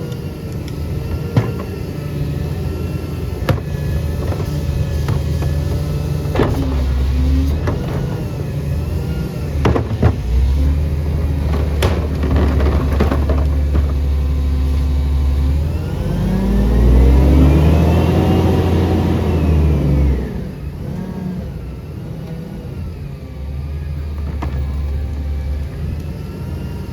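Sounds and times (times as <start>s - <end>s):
garbage truck engine: 0.0s - 26.9s
sharp knocks and bangs: 1.1s - 1.9s, 3.4s - 8.5s, 9.6s - 14.8s.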